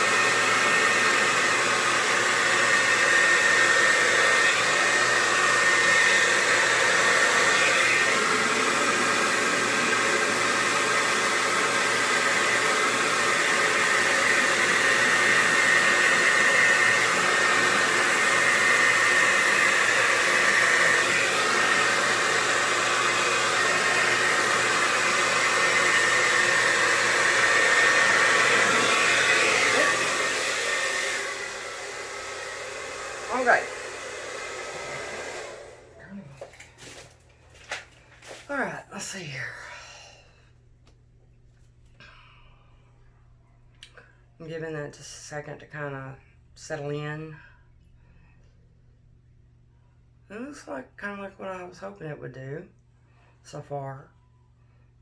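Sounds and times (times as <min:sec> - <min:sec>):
hair dryer running: 0:00.0 - 0:39.8.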